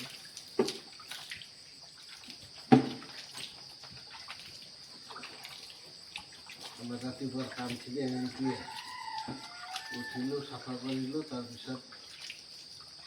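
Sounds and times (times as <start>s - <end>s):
water splashing and scraping: 0.0s - 13.0s.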